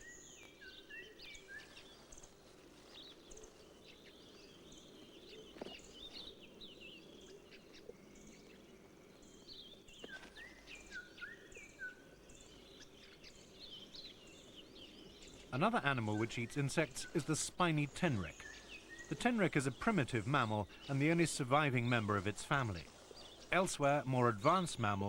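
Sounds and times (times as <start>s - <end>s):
birds chirping and whistling: 9.2s - 25.0s.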